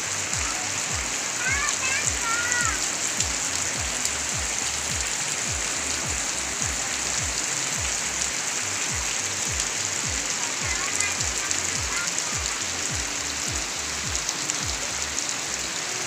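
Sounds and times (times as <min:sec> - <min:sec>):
background music with steady beat: 0:00.0 - 0:10.4
heavy rain pouring: 0:00.0 - 0:16.0
water streaming off roof edges: 0:00.0 - 0:16.0.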